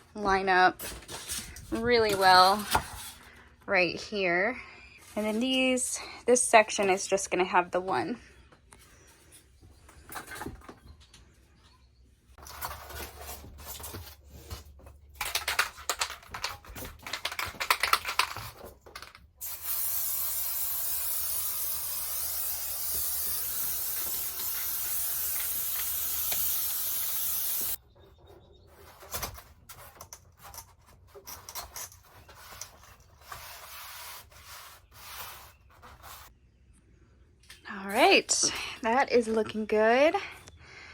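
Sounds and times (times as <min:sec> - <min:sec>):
aerosol spray hissing: 0:19.4 - 0:27.8.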